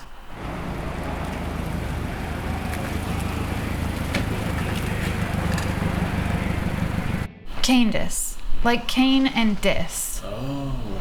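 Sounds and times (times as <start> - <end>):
car engine with rough exhaust rumble: 0.3 - 7.3.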